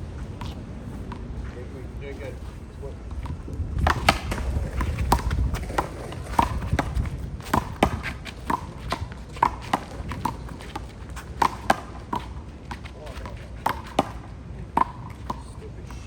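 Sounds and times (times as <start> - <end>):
ball smacks: 3.2 - 12.3.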